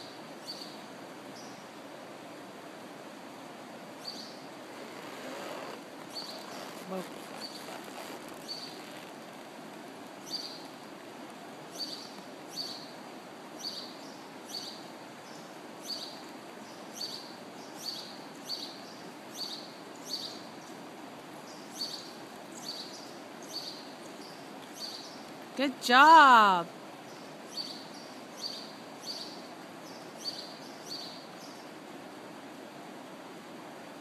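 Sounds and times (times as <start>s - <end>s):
steady background hiss: 0.0s - 34.0s
bird chirping: 6.1s - 9.0s.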